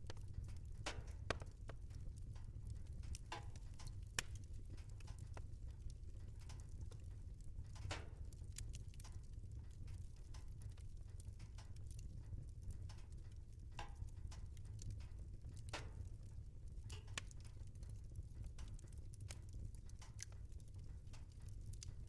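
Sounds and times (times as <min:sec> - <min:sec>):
low rumble of burning: 0:00.0 - 0:22.0
wood fire crackling: 0:00.0 - 0:22.0.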